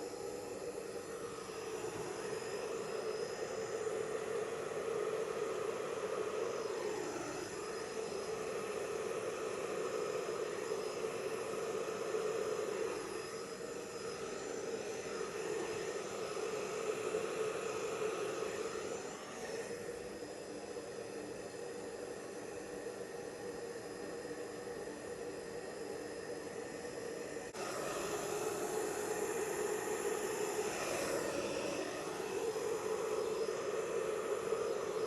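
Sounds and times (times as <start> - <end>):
hairdryer running: 0.0 - 35.0.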